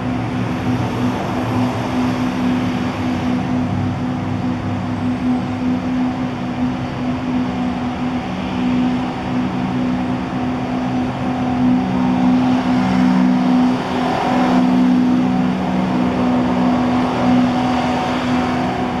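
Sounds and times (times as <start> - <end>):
engine drone: 0.0 - 19.0
road noise hiss: 0.0 - 19.0.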